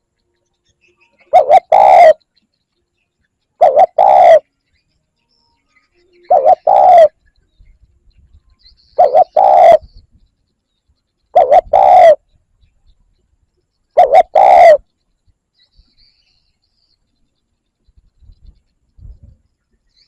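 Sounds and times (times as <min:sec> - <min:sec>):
dove cooing: 0:01.2 - 0:02.2, 0:03.6 - 0:04.5, 0:06.1 - 0:07.2, 0:09.0 - 0:10.0, 0:11.3 - 0:12.3, 0:14.0 - 0:14.9.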